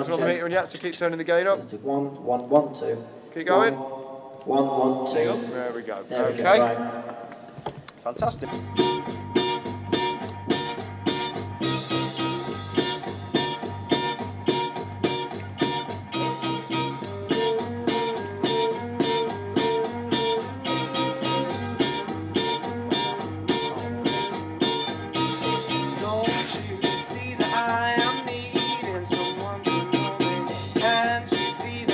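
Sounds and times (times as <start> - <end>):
rock band music: 8.2 - 31.9.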